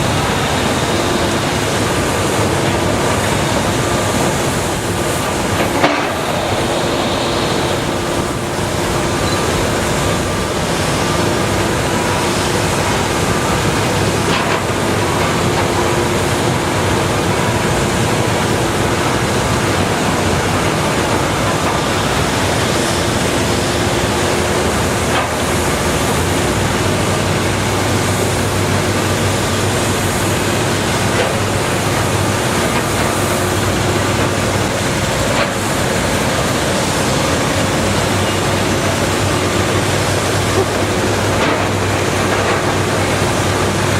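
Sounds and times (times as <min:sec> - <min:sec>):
excavator engine and hydraulics: 0:00.0 - 0:43.9.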